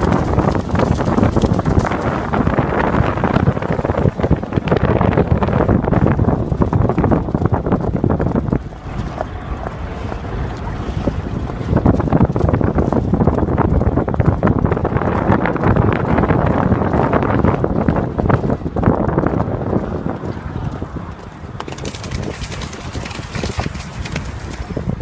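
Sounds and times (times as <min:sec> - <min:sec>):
horse splashing through water: 0:00.0 - 0:08.0, 0:21.6 - 0:25.0
wind buffeting microphone: 0:00.0 - 0:25.0.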